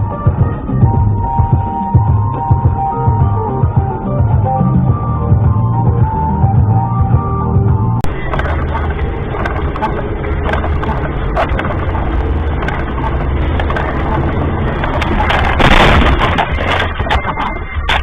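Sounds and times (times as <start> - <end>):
car engine and road noise: 0.0 - 18.0
loud burst of noise: 8.0 - 18.0
clicks and rattles: 8.3 - 18.0.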